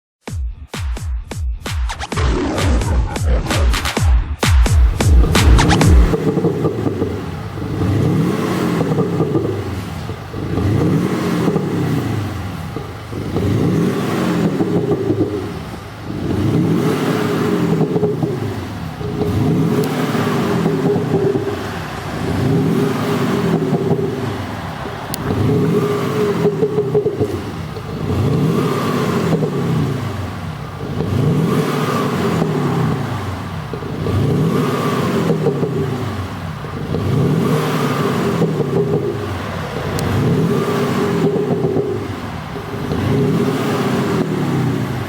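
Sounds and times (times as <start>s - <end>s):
car engine revving: 1.9s - 45.0s.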